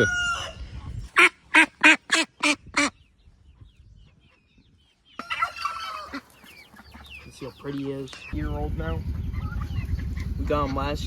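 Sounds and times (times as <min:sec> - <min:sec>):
rooster crowing: 0:00.0 - 0:00.6
duck quacking: 0:01.2 - 0:03.0.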